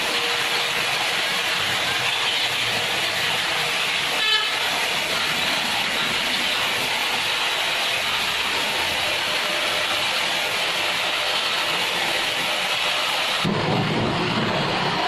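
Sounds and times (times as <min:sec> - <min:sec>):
horn toot: 0:04.2 - 0:04.6.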